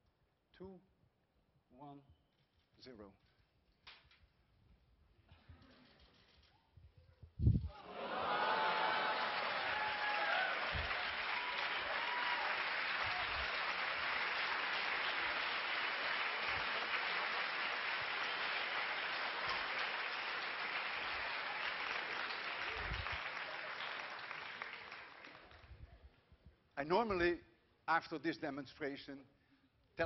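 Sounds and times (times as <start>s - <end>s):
whoops: 7.7s - 13.8s
audience applauding: 7.8s - 25.7s.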